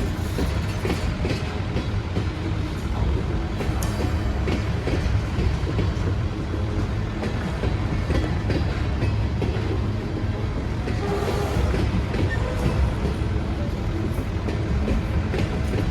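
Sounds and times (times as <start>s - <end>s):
train rumbling on rails: 0.0s - 15.9s.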